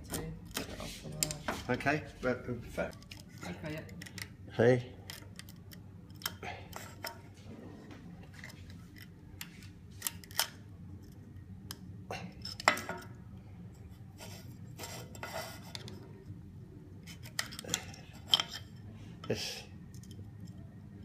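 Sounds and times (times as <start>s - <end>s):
metal tool clicking and scraping: 8.4s - 13.1s, 17.0s - 20.6s.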